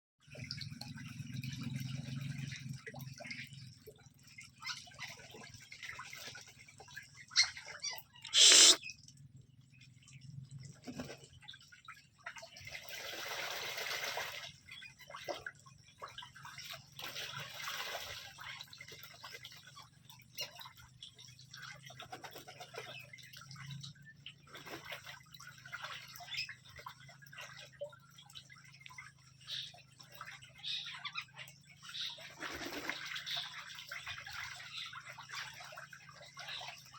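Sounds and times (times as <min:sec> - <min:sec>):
ducks splashing in water: 0:10.8 - 0:23.7, 0:24.4 - 0:36.9.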